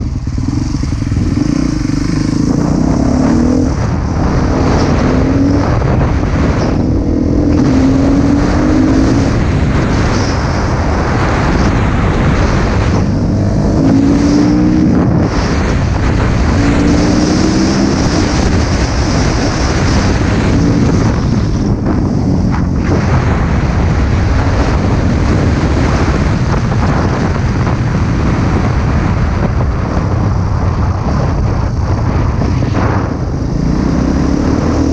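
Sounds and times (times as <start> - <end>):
motocross bike engine revving: 0.0 - 26.3
wind noise on microphone: 0.0 - 34.9.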